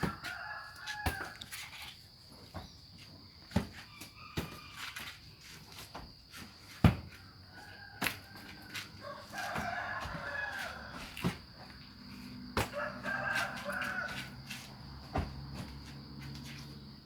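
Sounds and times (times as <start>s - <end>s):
rooster crowing: 0.0s - 1.6s, 7.3s - 11.3s, 12.0s - 14.7s.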